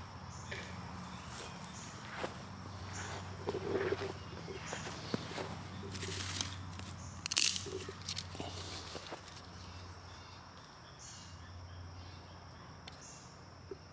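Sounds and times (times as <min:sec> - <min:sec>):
footsteps crunching on ground: 0:00.5 - 0:09.8.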